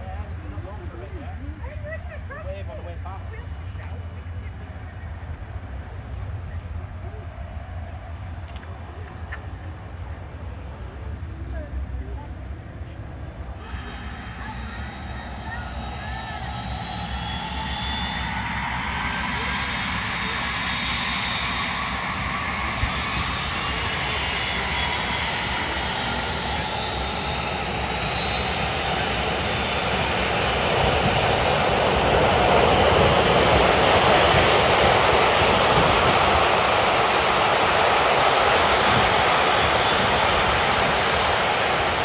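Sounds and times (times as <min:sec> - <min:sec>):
jet engine whines rising: 0:13.1 - 0:42.0
jet roar: 0:13.4 - 0:42.0.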